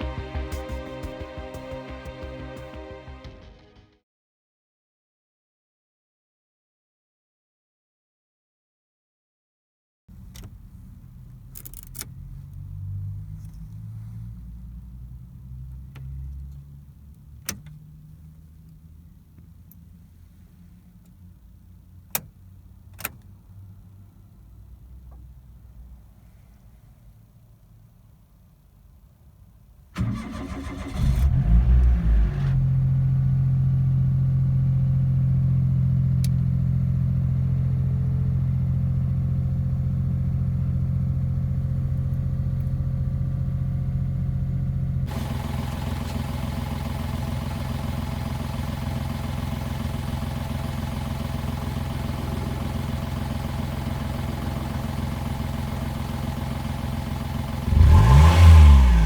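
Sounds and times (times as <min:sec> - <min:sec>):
car engine starting and idling: 0:00.0 - 0:03.5, 0:10.1 - 0:59.0
engine revving: 0:11.7 - 0:16.6, 0:30.0 - 0:33.7, 0:44.4 - 0:47.3, 0:57.4 - 0:59.0.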